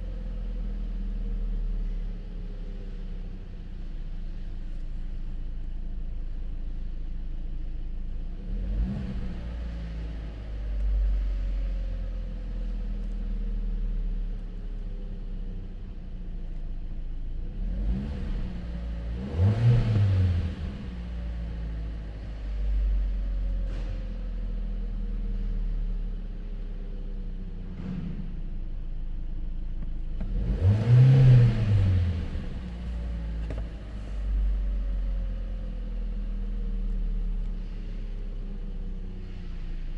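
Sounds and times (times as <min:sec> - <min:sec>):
engine revving: 0:17.5 - 0:21.4, 0:30.2 - 0:34.5
car engine idling: 0:29.3 - 0:39.9.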